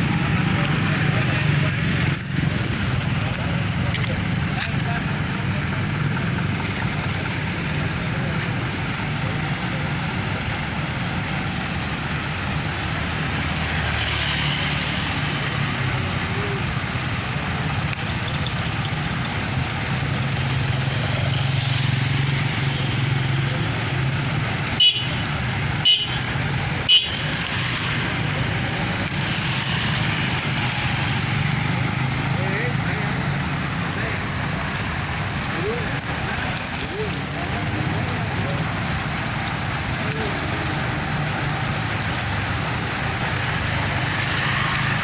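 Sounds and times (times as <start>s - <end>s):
road traffic rumble: 0.0s - 45.0s
vehicle horn toots: 24.8s - 27.3s.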